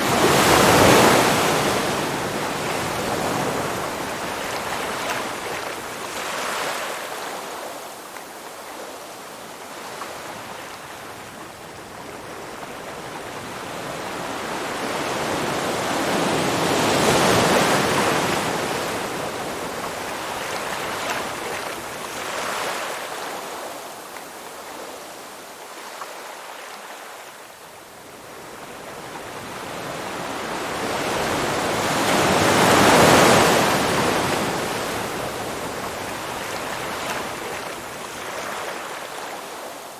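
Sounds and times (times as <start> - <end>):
waves breaking loudly: 0.0 - 7.4, 30.7 - 39.5
ocean waves washing ashore: 0.0 - 39.9.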